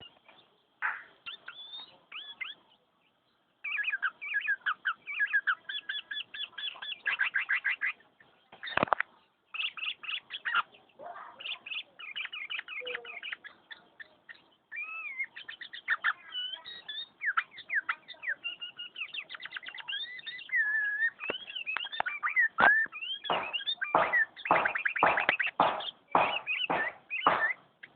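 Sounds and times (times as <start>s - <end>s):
bird singing fast chirps: 0.0s - 27.9s
knock: 23.3s - 27.5s.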